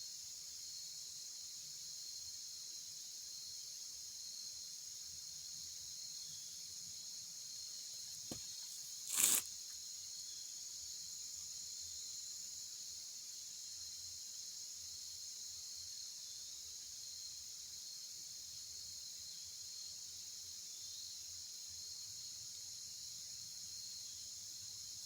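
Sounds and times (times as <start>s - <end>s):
insect chorus shrilling: 8.3s - 9.4s
swish or rustle: 9.1s - 9.4s.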